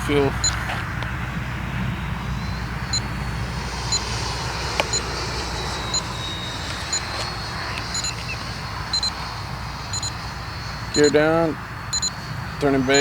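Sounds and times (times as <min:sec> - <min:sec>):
high fan whine: 0:00.0 - 0:13.0
low wind rumble: 0:00.0 - 0:13.0
short electronic beeps: 0:07.9 - 0:08.3, 0:08.9 - 0:09.2, 0:09.9 - 0:10.2, 0:10.9 - 0:11.2, 0:11.9 - 0:12.2.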